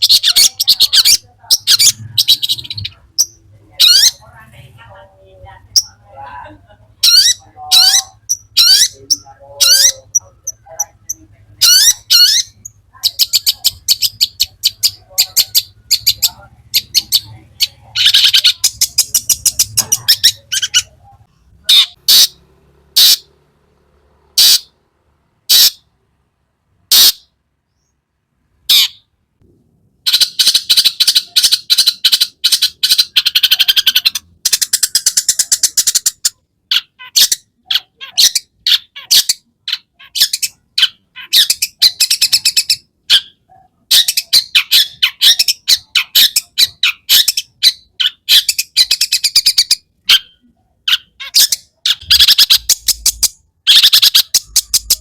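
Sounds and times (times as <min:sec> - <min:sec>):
shrike singing chattering notes: 0:52.0 - 0:55.0.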